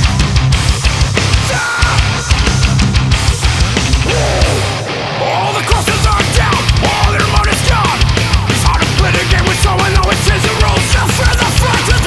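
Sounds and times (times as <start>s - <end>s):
sliding bending guitar notes: 0.0s - 9.5s
heavy metal band music: 0.0s - 12.0s.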